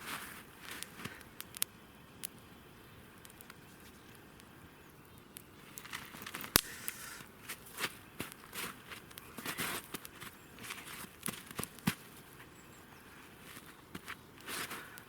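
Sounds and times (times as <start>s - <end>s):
footsteps crunching in snow: 0.0s - 1.2s, 5.8s - 12.6s, 13.2s - 15.0s
campfire crackling and popping: 0.0s - 15.0s.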